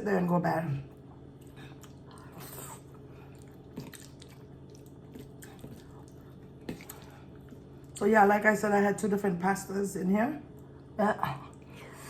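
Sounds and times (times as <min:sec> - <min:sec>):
person chewing food: 0:00.9 - 0:08.0.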